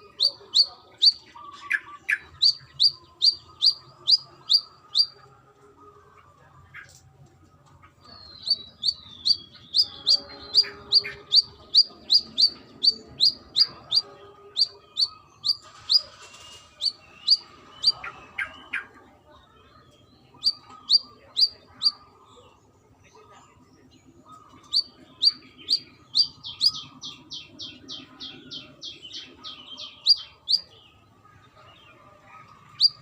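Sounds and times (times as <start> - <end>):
bird singing sharp high notes: 8.3 - 18.0.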